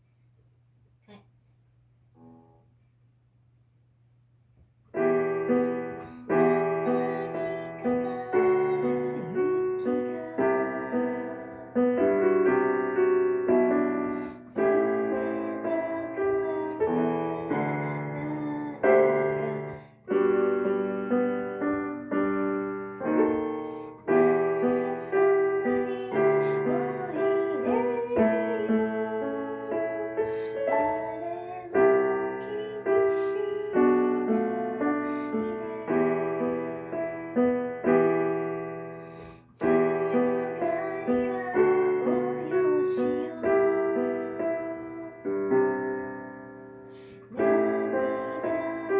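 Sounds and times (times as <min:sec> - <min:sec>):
slow piano chords: 0:04.9 - 0:48.9.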